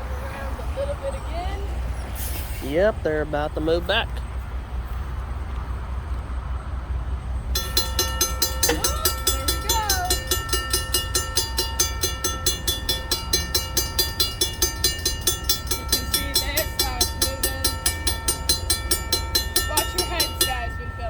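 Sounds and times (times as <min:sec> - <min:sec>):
diesel locomotives idling: 0:00.0 - 0:21.0
crossing warning bell ringing: 0:07.4 - 0:21.0.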